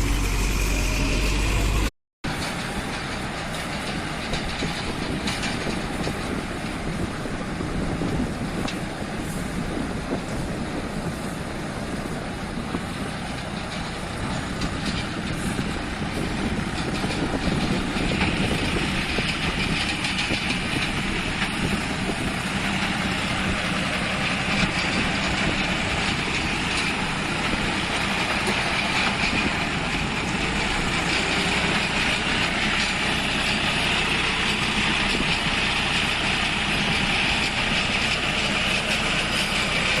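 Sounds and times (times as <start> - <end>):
baler machine running: 0.0 - 3.2.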